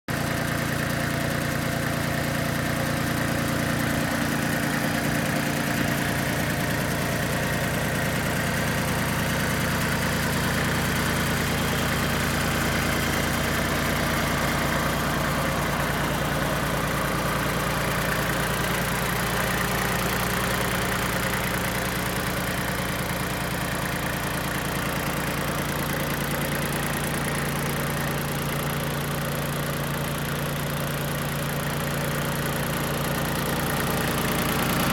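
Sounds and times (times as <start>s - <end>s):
tractor diesel engine idling: 0.1s - 34.9s.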